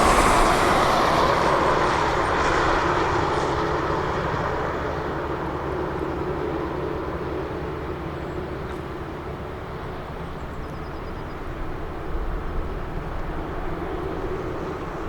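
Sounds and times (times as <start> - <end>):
diesel engine rumbling: 0.0 - 4.0.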